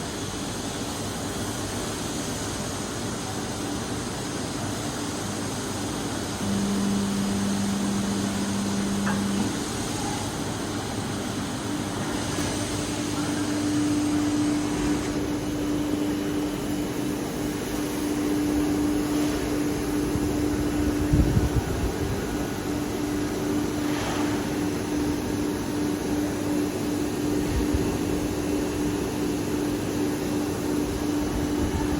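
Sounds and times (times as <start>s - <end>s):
welding machine droning: 5.3s - 31.9s
higher steady hum: 5.4s - 31.9s
low hum: 6.4s - 11.0s.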